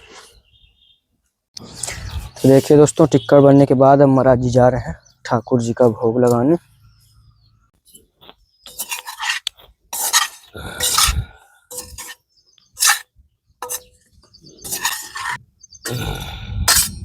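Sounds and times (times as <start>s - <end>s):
utensils and dishes clattering: 13.6s - 13.9s, 14.6s - 15.4s.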